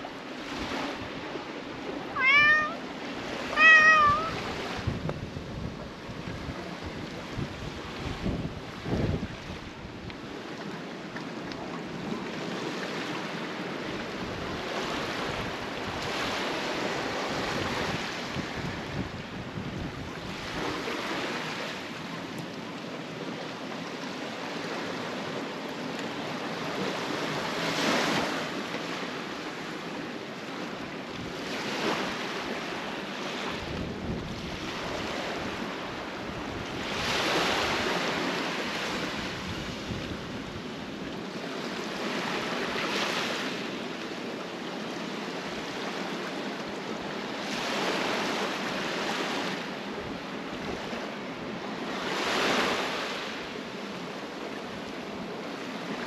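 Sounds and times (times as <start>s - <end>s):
sea waves washing against breakwater: 0.0s - 56.0s
wind buffeting microphone: 3.2s - 10.5s, 13.6s - 21.2s, 33.5s - 38.3s.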